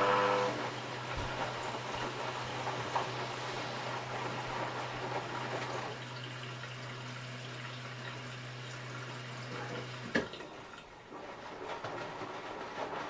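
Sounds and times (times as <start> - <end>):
washing machine motor hum: 0.0 - 13.0
water sloshing in washing machine: 0.0 - 13.0.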